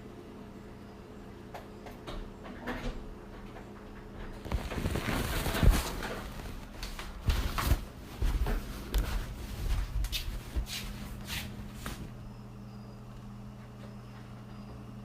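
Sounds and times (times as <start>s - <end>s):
steady low hum: 0.0s - 15.0s
knocks and rustling of handling: 2.4s - 12.2s.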